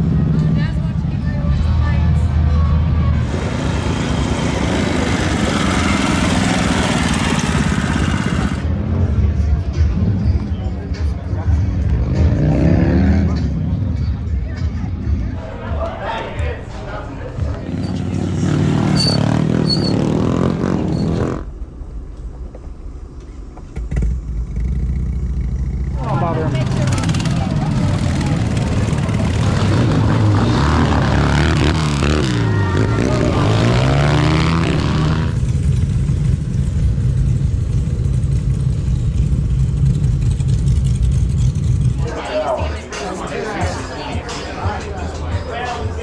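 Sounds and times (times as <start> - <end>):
motorcycle engine running: 0.0 - 10.5, 17.6 - 42.4.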